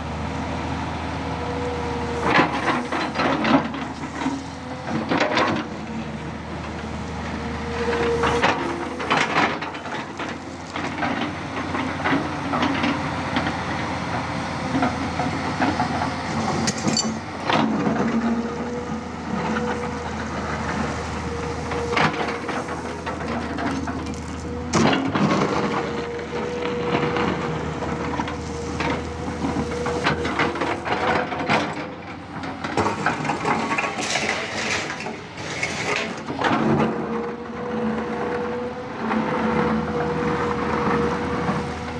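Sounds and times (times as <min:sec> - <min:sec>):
excavator diesel engine running: 0:00.0 - 0:41.9
hydraulic whine: 0:00.3 - 0:31.5.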